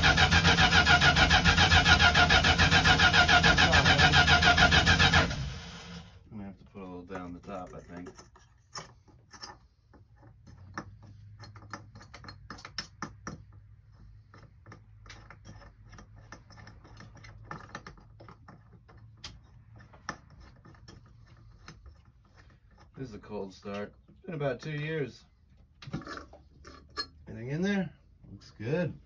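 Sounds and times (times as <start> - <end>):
tools clinking on engine parts: 7.1 - 22.0, 25.9 - 27.4.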